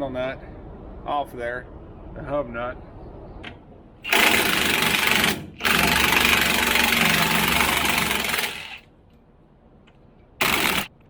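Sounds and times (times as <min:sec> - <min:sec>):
impact wrench hammering: 0:04.1 - 0:08.8, 0:10.4 - 0:10.9.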